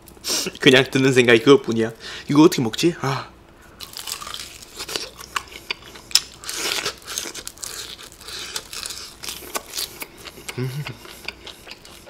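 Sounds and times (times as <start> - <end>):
crunchy chewing of fried chicken: 3.8 - 12.0.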